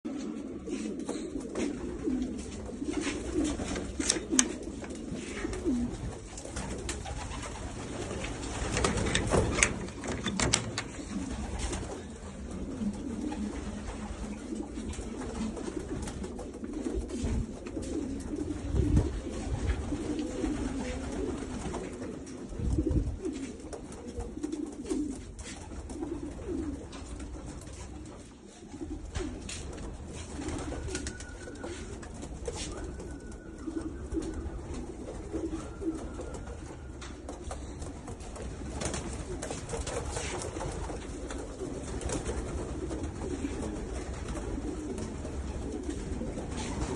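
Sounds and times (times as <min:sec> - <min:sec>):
pigeons cooing: 0:00.1 - 0:46.9
sharp knocks and clicks: 0:08.7 - 0:11.2.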